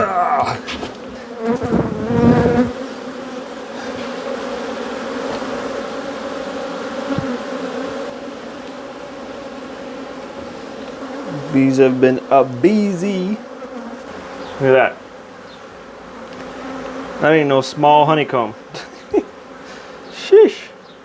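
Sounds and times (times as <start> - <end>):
handling noise bump: 0.0 - 2.6
bees buzzing: 0.0 - 21.0.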